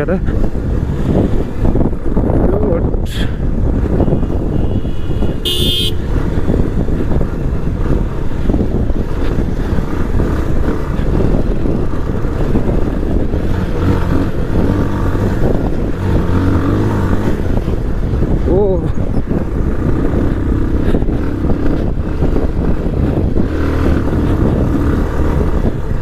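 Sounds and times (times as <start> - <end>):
motorcycle engine running: 3.4 - 26.0
short horn beep: 4.1 - 6.0.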